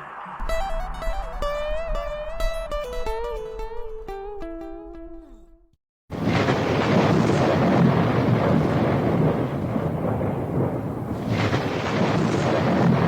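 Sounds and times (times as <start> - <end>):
thunder rumbling: 6.1 - 13.0.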